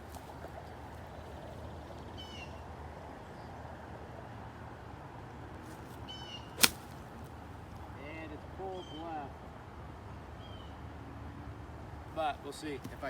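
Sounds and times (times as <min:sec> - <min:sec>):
outdoor background noise: 0:00.0 - 0:13.0
bird chirping: 0:06.0 - 0:07.0
golf club striking ball: 0:06.6 - 0:07.2.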